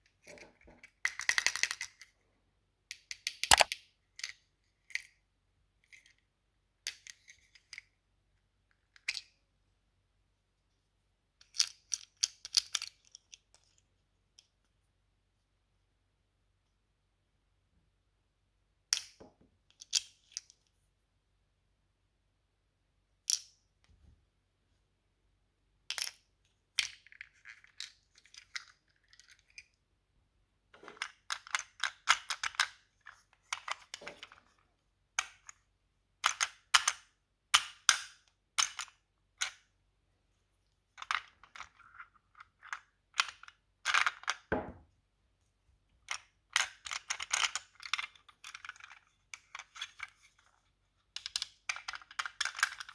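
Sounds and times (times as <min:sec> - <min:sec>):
plastic toy pieces clicking: 0:02.9 - 0:04.4.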